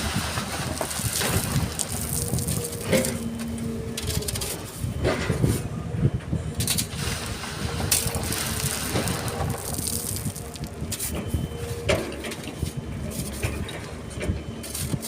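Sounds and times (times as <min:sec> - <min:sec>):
bucket crunching through stones: 0:00.0 - 0:03.4, 0:06.6 - 0:11.4
excavator engine rumbling: 0:00.0 - 0:15.0
faint steady whine: 0:00.0 - 0:15.0.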